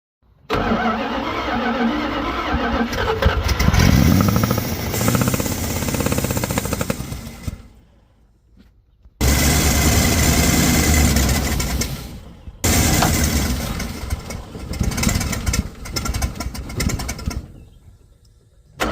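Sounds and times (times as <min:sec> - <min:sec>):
engine running unevenly: 0:03.3 - 0:08.2, 0:09.2 - 0:18.9.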